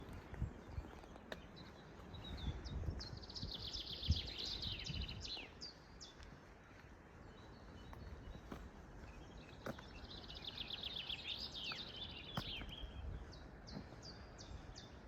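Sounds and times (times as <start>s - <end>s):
bird chirps: 7.3s - 15.0s.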